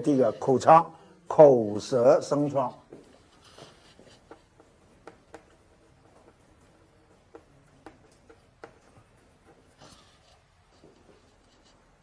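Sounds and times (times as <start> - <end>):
writing on a board: 2.7 - 12.0.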